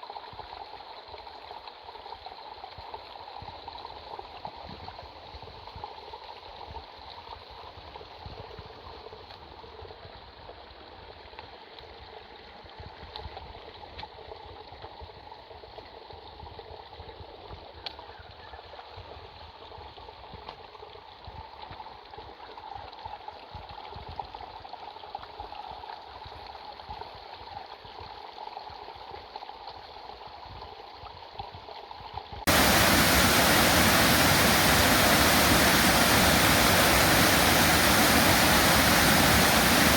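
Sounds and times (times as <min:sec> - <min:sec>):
creek water running: 0:32.5 - 0:39.9
falling water rushing: 0:32.5 - 0:39.9.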